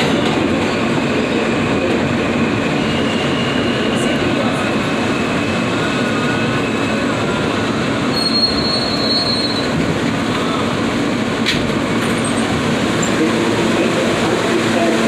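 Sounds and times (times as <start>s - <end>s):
rumble of wheels on rail: 0.0s - 15.0s
high wheel squeals: 8.0s - 9.8s.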